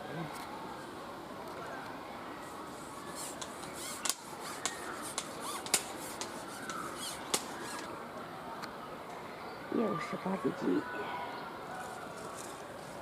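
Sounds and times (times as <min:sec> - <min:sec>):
rustling: 0:02.4 - 0:07.9
sharp clicks: 0:03.4 - 0:07.9.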